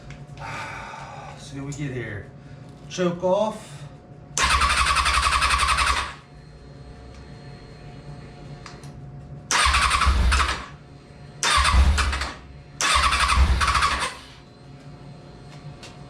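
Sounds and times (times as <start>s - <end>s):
motorcycle electric starter cranking: 4.4s - 6.2s, 9.5s - 10.8s, 11.4s - 14.3s.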